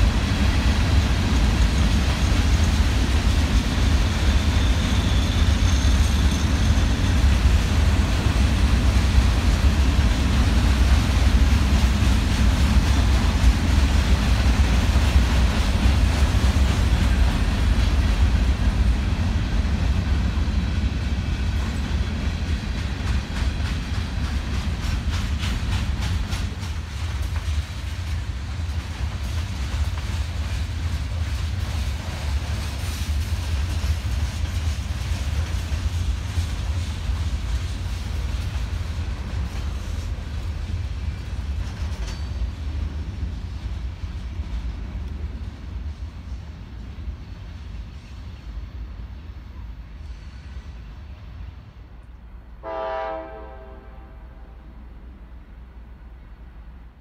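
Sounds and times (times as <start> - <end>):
freight train rumbling past: 0.0 - 57.0
wheels clicking over rail joints: 21.5 - 43.1.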